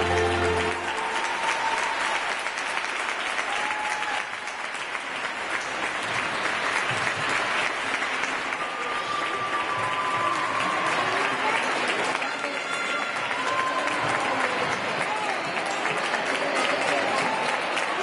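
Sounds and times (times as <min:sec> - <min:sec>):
show music held note: 0:00.0 - 0:01.3
audience applauding: 0:00.0 - 0:18.0.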